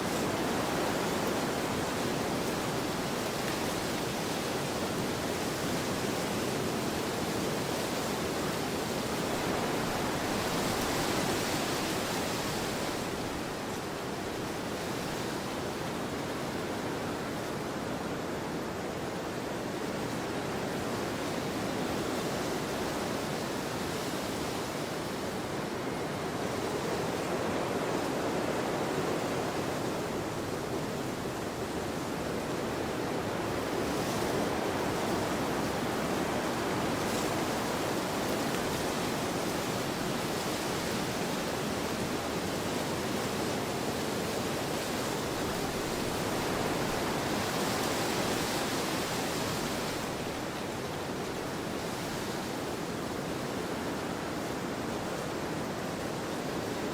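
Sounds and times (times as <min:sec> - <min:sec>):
wind blowing across a field: 0:00.0 - 0:56.9.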